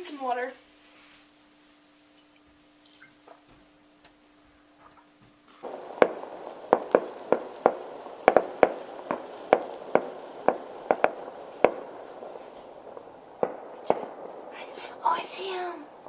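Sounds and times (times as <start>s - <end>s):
steady hiss: 0.0s - 16.0s
fireworks bangs: 4.9s - 16.0s.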